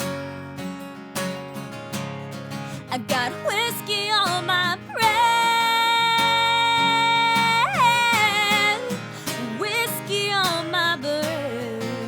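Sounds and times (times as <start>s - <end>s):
person singing country song: 2.6s - 12.0s.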